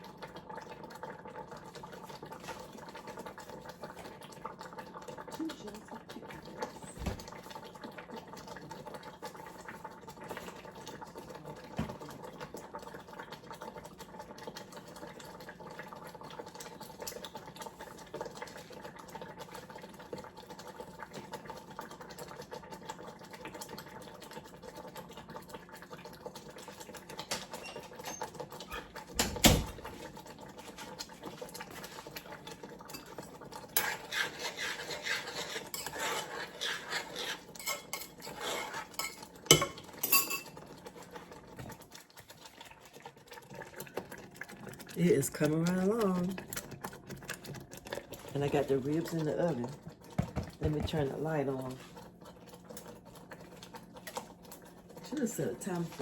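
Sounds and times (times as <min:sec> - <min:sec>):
utensils and dishes clattering: 0:33.8 - 0:40.6.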